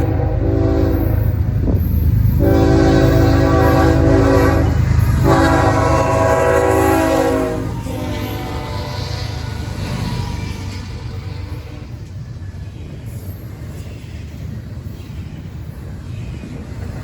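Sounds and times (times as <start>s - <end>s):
locomotive air horn blasts: 0.0s - 1.3s, 2.4s - 10.0s.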